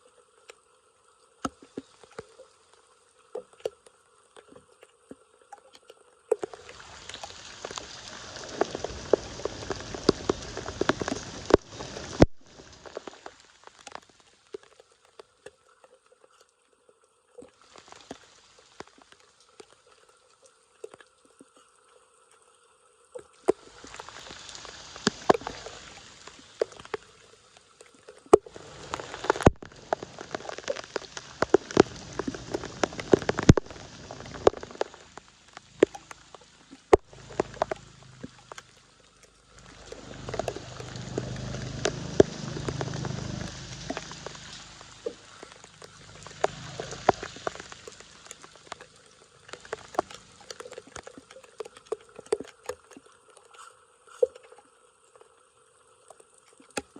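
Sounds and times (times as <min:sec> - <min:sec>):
low gush of water: 0:00.0 - 0:56.9
water splashing and trickling: 0:00.0 - 0:56.9.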